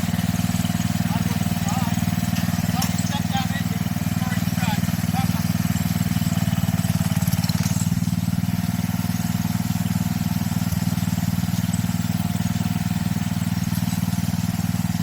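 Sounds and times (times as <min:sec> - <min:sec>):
small tractor engine running: 0:00.0 - 0:15.0.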